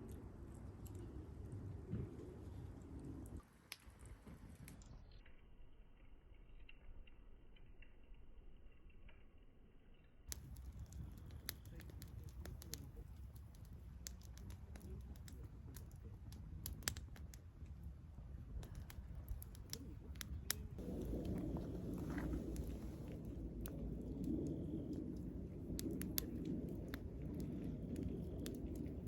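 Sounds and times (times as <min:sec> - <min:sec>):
campfire crackling and popping: 0:10.3 - 0:29.0
low rumbling noise: 0:19.9 - 0:29.0.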